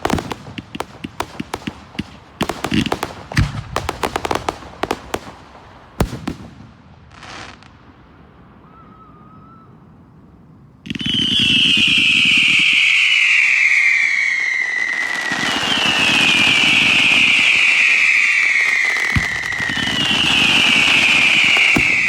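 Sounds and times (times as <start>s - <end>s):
whistling firework: 0.0s - 22.0s
firework bang: 16.0s - 22.0s.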